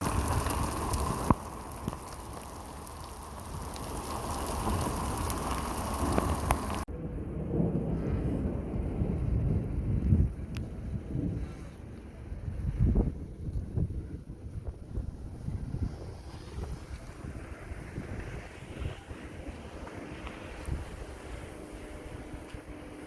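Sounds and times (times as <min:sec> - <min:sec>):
rain falling: 0:00.0 - 0:06.9, 0:15.8 - 0:23.0
deep rumbling noise: 0:00.0 - 0:19.8.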